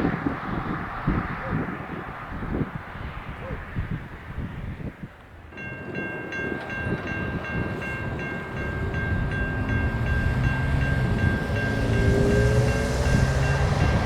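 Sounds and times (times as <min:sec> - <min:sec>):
low locomotive tones: 0:00.0 - 0:14.0
train rumble: 0:00.0 - 0:14.0
railroad crossing bell ringing: 0:05.4 - 0:14.0.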